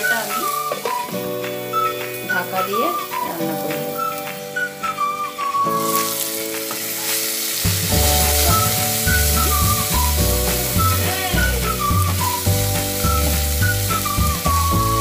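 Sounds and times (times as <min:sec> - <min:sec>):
vegetables sizzling in oil: 0:00.0 - 0:15.0
background music with bass beat: 0:07.7 - 0:15.0.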